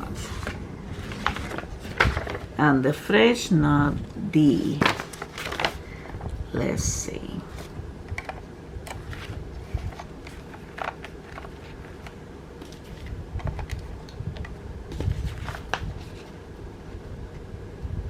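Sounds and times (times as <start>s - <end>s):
soft rustles and clicks: 0.0s - 2.6s, 7.5s - 17.5s
low steady rumble: 0.0s - 18.0s.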